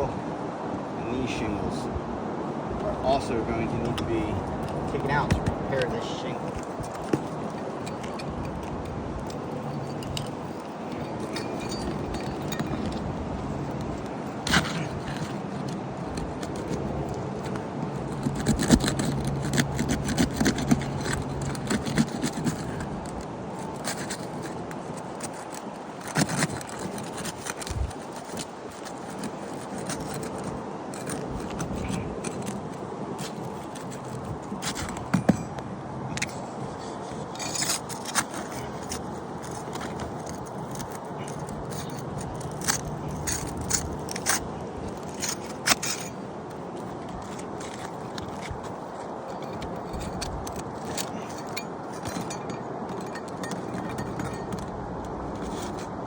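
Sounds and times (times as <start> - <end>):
steady low hum: 0.0 - 56.0
metal tool scraping and clicking: 3.8 - 56.0.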